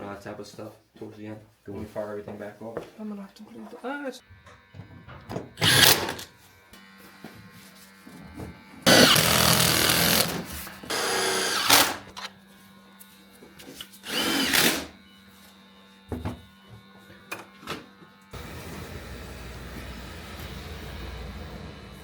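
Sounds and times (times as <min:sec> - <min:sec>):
power drill running: 0:05.6 - 0:06.4, 0:08.8 - 0:12.3, 0:13.9 - 0:15.2.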